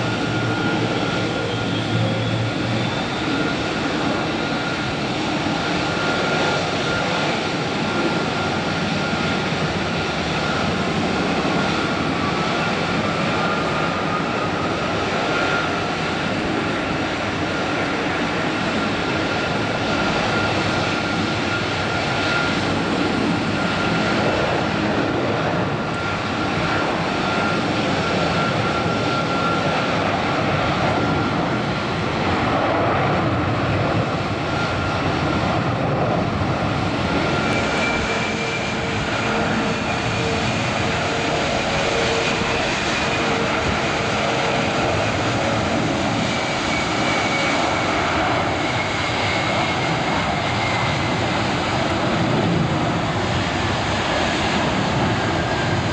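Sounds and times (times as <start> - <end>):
jet engines roaring with whine: 0.0 - 55.9.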